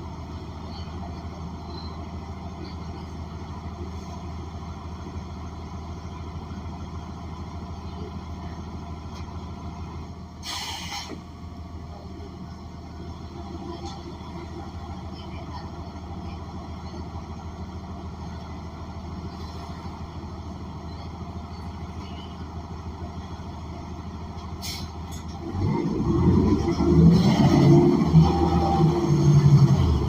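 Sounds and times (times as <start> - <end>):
bus engine drone: 0.0 - 30.0
short hiss of air: 10.4 - 11.2, 24.6 - 25.0.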